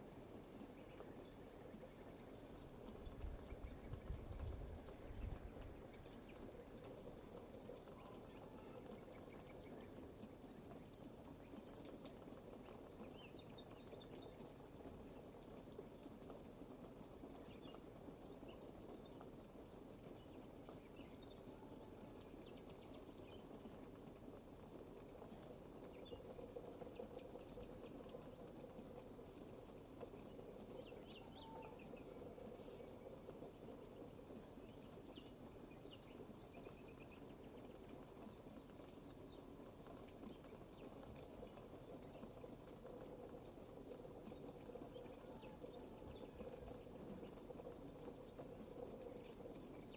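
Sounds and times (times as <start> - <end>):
quiet rainfall: 0.0 - 49.9
drip ticks: 0.7 - 19.4
faint bird chirps: 7.8 - 10.0, 30.6 - 33.2.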